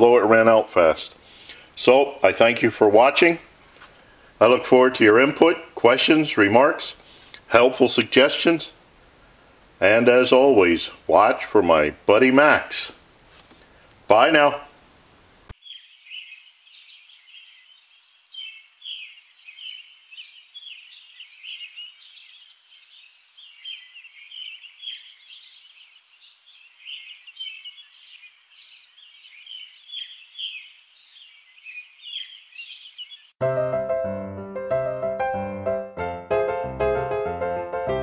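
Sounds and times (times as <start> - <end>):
small birds chirping: 0.0 - 7.5, 15.5 - 33.4.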